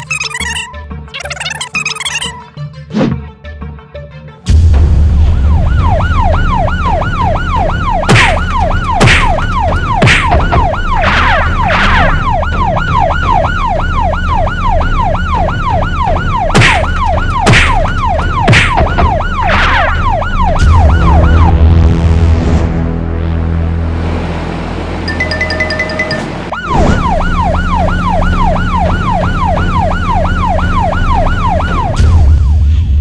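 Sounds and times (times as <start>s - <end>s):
cartoon police siren wail: 0.0s - 2.3s, 5.4s - 21.6s, 25.2s - 32.7s.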